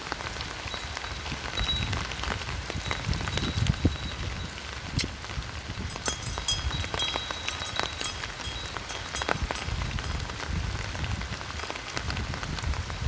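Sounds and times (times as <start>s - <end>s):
raindrops ticking on a surface: 0.0s - 13.0s.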